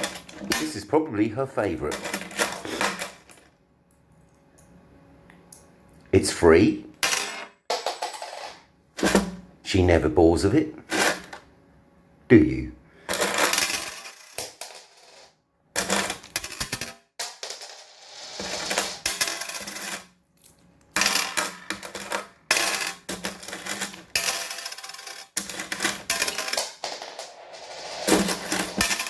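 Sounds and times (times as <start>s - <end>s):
coins clattering and jingling: 0.0s - 0.7s, 1.9s - 3.5s, 7.0s - 8.6s, 13.1s - 29.0s.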